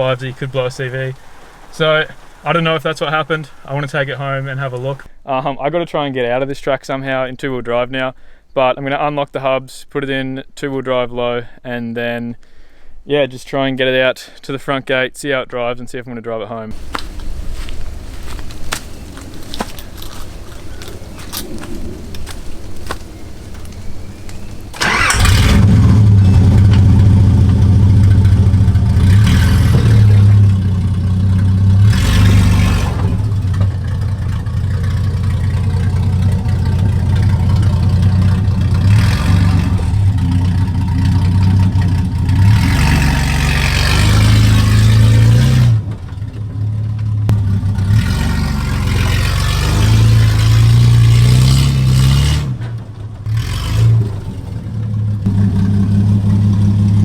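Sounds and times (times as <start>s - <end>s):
car engine revving without exhaust: 16.8s - 57.0s.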